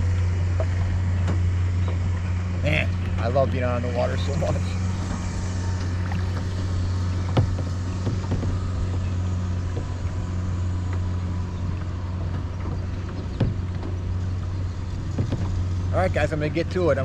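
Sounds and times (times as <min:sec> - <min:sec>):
motorboat engine drone: 0:00.0 - 0:17.0
sharp knocks: 0:07.2 - 0:09.1, 0:12.6 - 0:14.0, 0:15.1 - 0:15.6.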